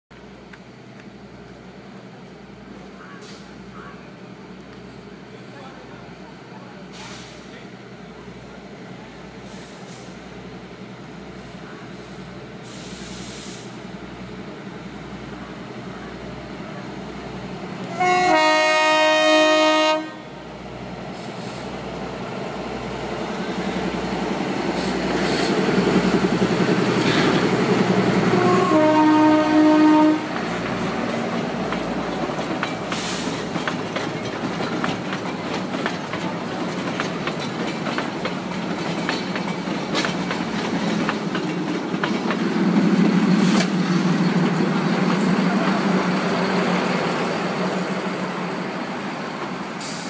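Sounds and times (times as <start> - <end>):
diesel locomotive engine: 0.1 - 50.0
train horn: 17.9 - 20.3, 28.2 - 30.4
wheels clicking over rail joints: 30.4 - 45.8.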